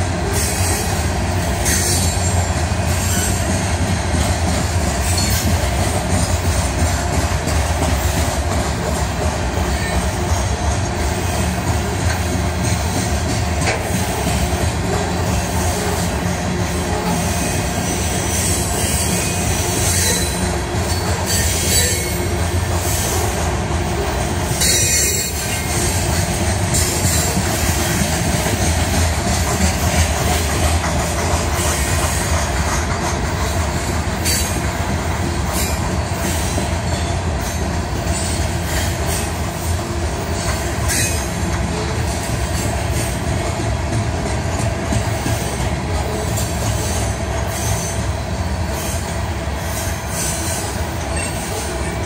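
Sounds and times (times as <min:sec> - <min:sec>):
steel wheels rumbling on rail: 0:00.0 - 0:52.0.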